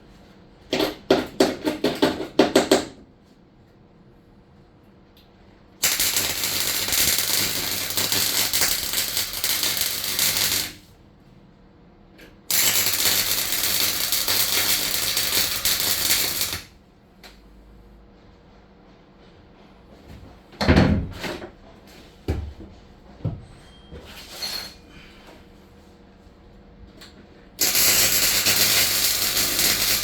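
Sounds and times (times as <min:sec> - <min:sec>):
welding arc crackling and sizzling: 0:05.8 - 0:10.9, 0:12.5 - 0:16.7, 0:27.6 - 0:30.0.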